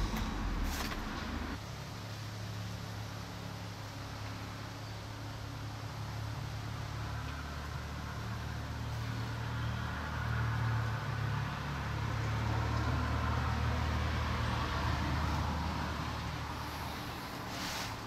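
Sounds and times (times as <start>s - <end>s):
car engine idling: 0.0s - 1.6s.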